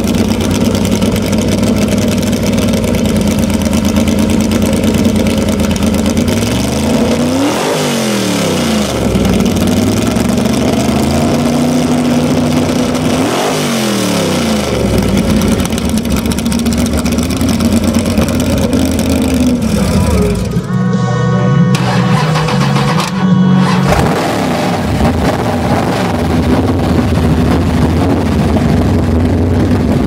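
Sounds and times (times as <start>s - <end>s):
car engine idling and revving: 0.0s - 21.0s, 21.6s - 30.0s.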